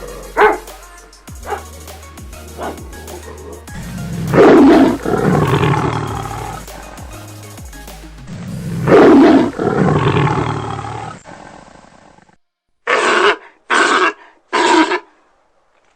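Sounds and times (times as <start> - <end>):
large animal roaring: 3.7 - 6.7, 8.4 - 12.3.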